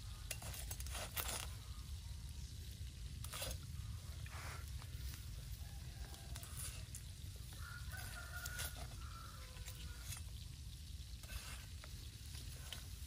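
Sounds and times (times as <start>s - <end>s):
chicken sizzling on a spit: 0.0s - 13.0s
rooster crowing: 5.5s - 10.2s.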